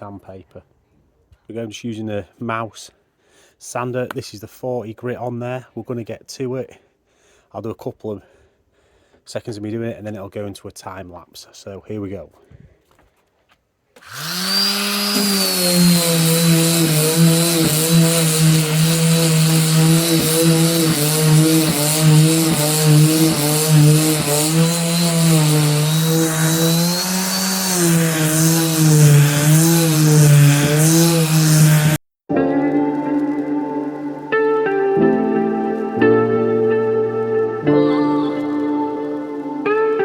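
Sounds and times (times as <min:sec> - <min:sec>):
electric sander motor hum: 0:14.0 - 0:32.0
sandpaper rasping on wood: 0:14.0 - 0:32.0.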